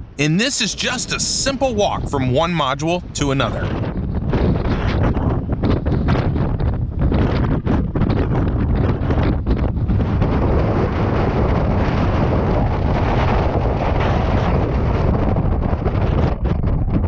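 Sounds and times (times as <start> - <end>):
strong wind buffeting microphone: 3.6 - 17.0.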